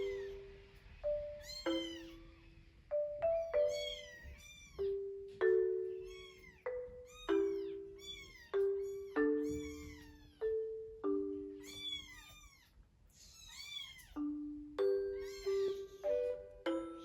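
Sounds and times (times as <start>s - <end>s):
mallet percussion music: 0.0s - 12.1s, 14.2s - 17.0s
kitten meowing: 1.4s - 2.5s, 3.6s - 5.0s, 6.0s - 10.4s, 11.6s - 14.2s, 15.2s - 16.1s.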